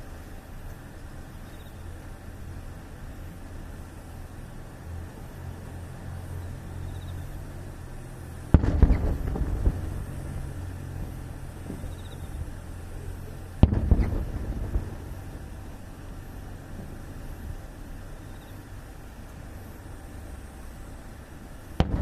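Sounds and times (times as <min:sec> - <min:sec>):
firework shells bursting: 0:08.4 - 0:17.7, 0:21.6 - 0:22.0
crackling pops: 0:08.5 - 0:12.6, 0:13.5 - 0:15.6, 0:21.8 - 0:22.0.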